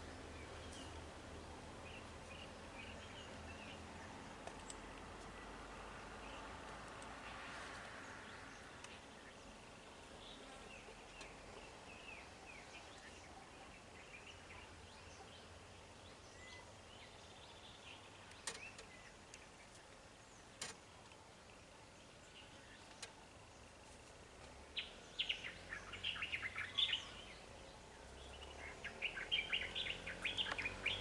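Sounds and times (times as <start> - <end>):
bird chirps: 10.2 - 20.5, 24.8 - 31.0.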